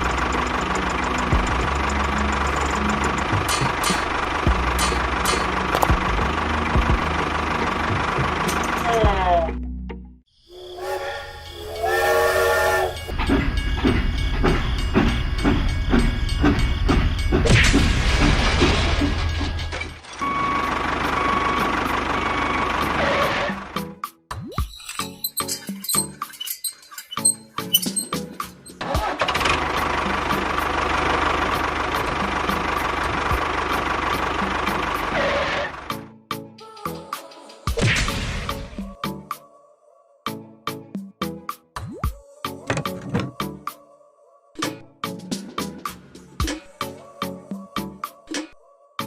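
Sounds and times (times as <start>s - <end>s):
rhythmic chugging: 0.0s - 8.7s, 10.6s - 17.6s
multi-tone horn blasts: 10.6s - 13.1s.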